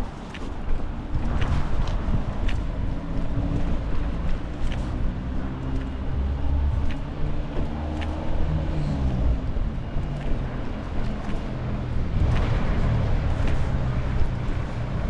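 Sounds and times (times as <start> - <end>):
vehicle engine rumbling: 0.0 - 15.0
light ticks: 4.3 - 9.2.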